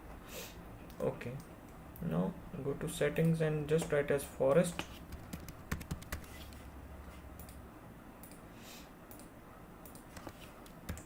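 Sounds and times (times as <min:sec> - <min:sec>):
computer keyboard keystrokes: 0:04.8 - 0:06.3, 0:09.1 - 0:11.0.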